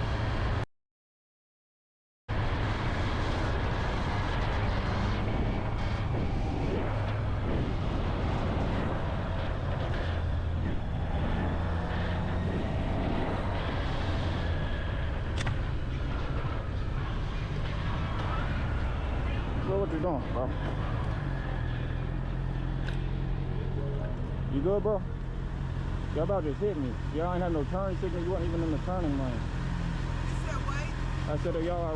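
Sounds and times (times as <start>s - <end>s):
motorbike engine hum: 2.4s - 31.9s
wind rush over microphone: 2.7s - 19.7s.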